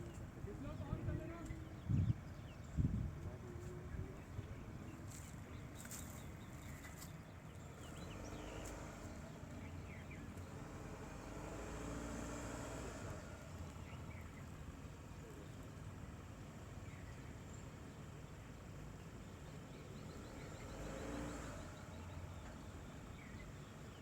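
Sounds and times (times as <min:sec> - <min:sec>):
diesel engine running: 0:07.3 - 0:24.0.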